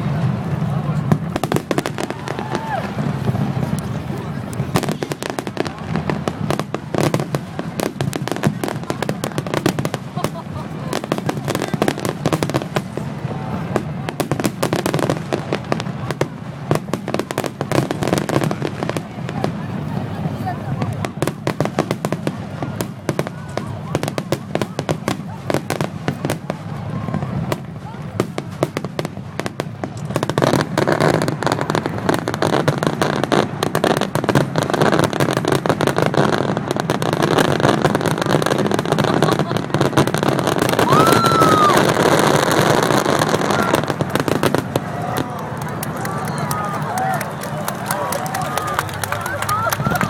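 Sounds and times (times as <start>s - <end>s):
fireworks bangs and crackles: 0.0s - 50.0s.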